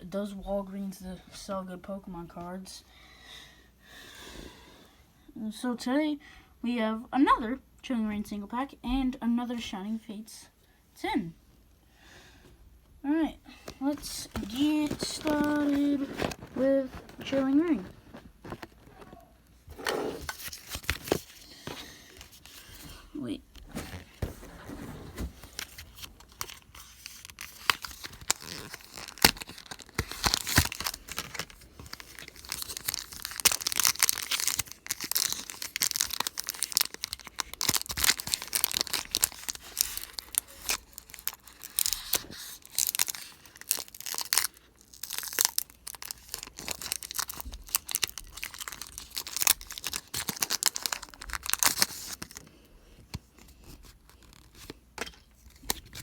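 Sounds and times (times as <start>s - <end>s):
foil wrapper tearing and crinkling: 14.1s - 19.1s, 23.6s - 52.5s, 53.2s - 56.0s.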